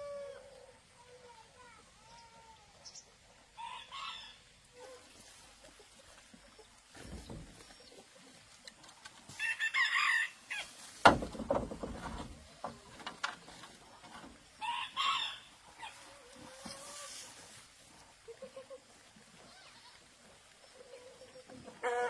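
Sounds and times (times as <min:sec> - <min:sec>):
chickens calling: 0:00.0 - 0:22.0.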